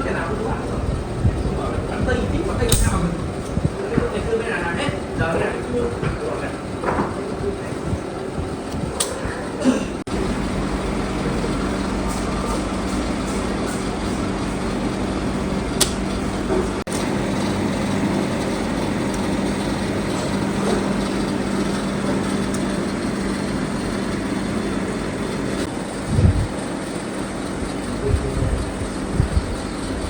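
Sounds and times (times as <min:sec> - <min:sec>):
sharp click: 0:02.7 - 0:03.0, 0:15.8 - 0:16.0.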